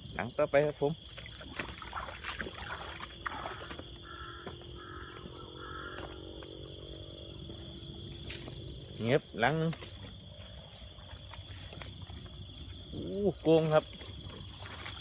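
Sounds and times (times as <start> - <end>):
crickets chirping: 0.0 - 15.0
short animal calls: 3.4 - 6.2
footsteps rustling through field: 7.4 - 15.0.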